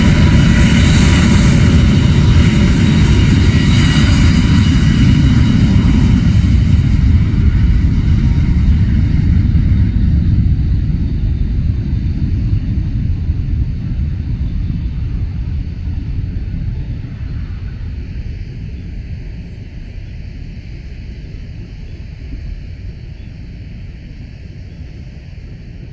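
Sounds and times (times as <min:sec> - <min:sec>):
jet engine hiss: 0:00.0 - 0:11.3
jet taking off rumble: 0:00.0 - 0:25.9.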